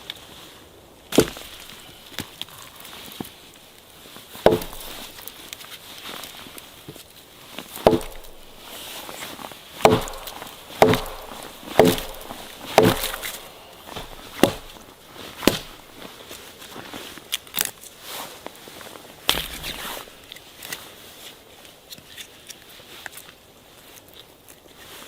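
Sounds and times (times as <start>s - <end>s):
wood being chopped: 1.1s - 2.3s, 4.4s - 5.3s, 7.8s - 16.0s, 19.3s - 20.1s.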